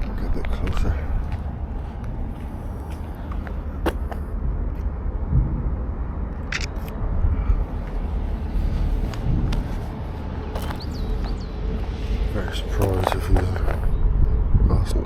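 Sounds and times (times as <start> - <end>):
low outdoor rumble: 0.0 - 15.0
camera shutter clicks: 6.5 - 7.0.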